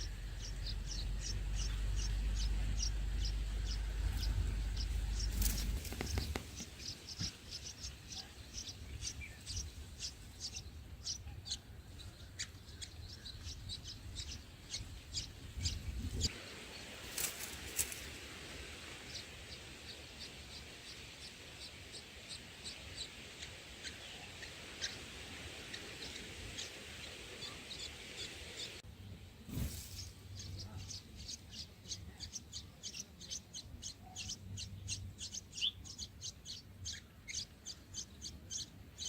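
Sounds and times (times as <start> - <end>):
low rumble: 0.0 - 6.3
small birds chirping: 0.0 - 39.0.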